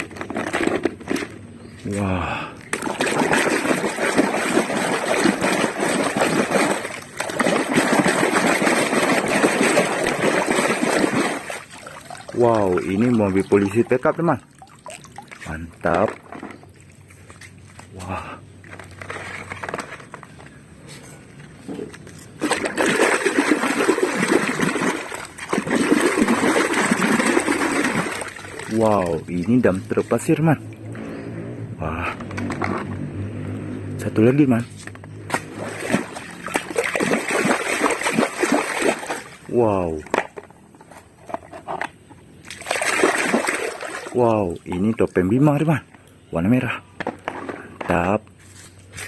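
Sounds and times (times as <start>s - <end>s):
water running and splashing: 2.7s - 15.6s, 22.4s - 30.8s, 35.3s - 39.5s, 42.5s - 45.2s.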